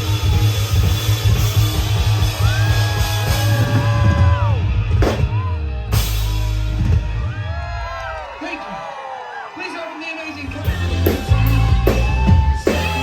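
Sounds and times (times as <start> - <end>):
live rock band playing: 0.0 - 7.5, 10.4 - 13.0.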